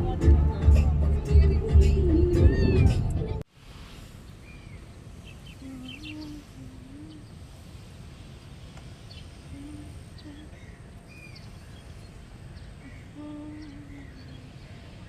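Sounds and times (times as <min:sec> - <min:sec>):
steady low rumble: 0:00.0 - 0:11.1
small birds chirping: 0:04.2 - 0:15.0.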